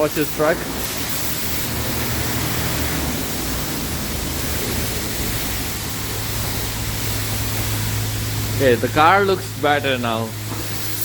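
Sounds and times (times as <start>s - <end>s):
low steady hum: 0.0s - 11.0s
pressure washer spray hiss: 0.0s - 11.0s.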